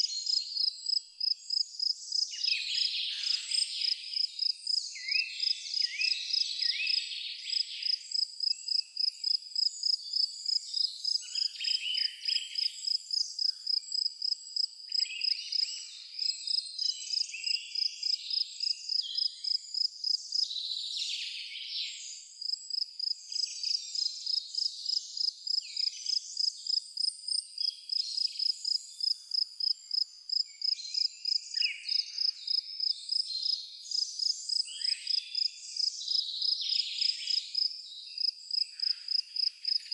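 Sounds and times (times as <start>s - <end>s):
birds singing: 0.0s - 8.8s, 9.6s - 14.0s, 27.6s - 39.9s
crickets chirping: 0.3s - 2.2s, 12.6s - 15.6s, 17.8s - 20.5s, 22.4s - 39.9s.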